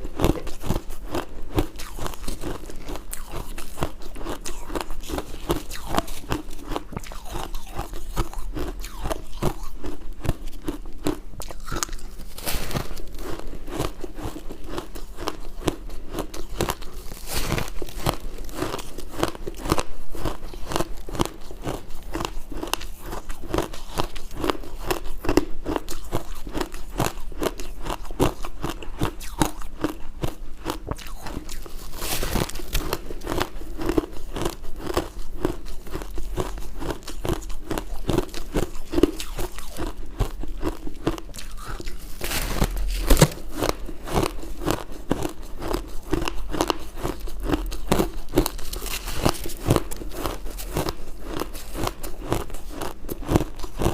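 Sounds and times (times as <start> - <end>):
ice crunching while chewed: 0.0 - 53.9.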